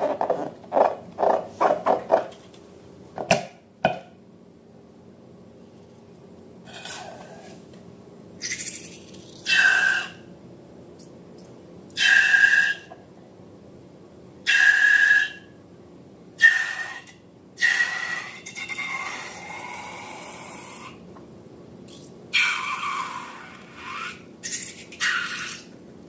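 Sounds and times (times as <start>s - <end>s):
air squealing out of balloon neck: 8.4s - 10.2s, 12.0s - 12.9s, 16.4s - 21.0s, 21.9s - 25.7s.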